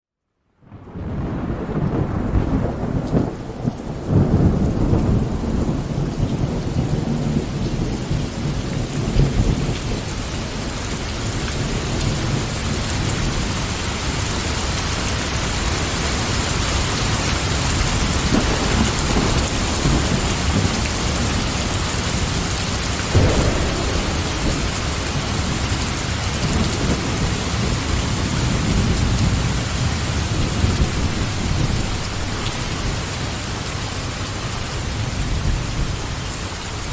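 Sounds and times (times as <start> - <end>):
heavy rain: 0.5 - 36.9
rolling thunder: 0.7 - 13.5, 17.8 - 33.8
sharp thunder crack: 23.1 - 32.3.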